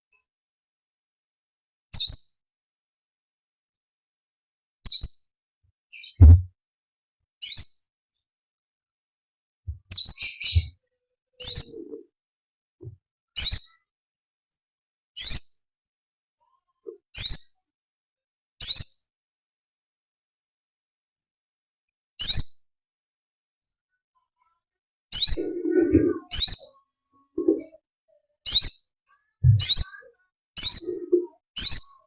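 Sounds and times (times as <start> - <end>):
low thump: 6.2 - 6.5.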